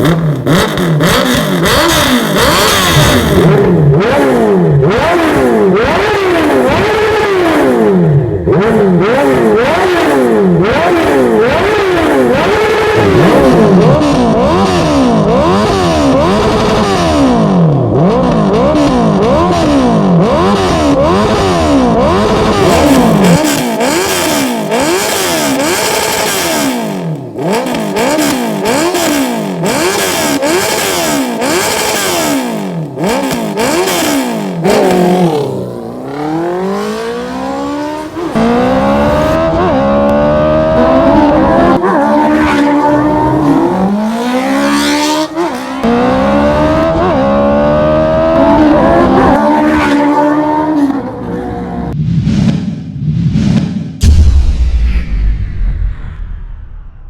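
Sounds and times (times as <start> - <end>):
motorcycle engine revving: 0.0 - 54.2.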